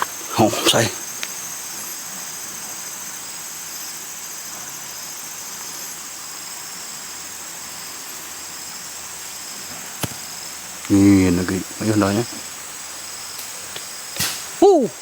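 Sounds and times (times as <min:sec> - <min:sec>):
forest insects buzzing: 0:00.0 - 0:15.0
steady hiss: 0:00.0 - 0:15.0.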